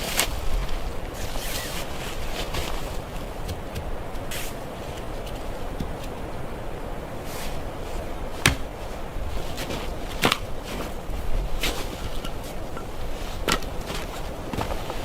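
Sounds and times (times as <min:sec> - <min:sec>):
steady background hiss: 0:00.0 - 0:15.0
sharp knocks: 0:08.4 - 0:08.8.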